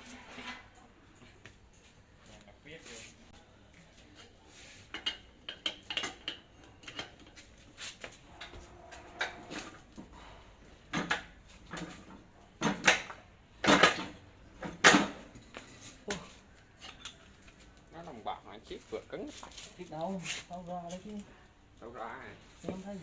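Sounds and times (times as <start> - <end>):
metal tools clinking: 16.7 - 17.5.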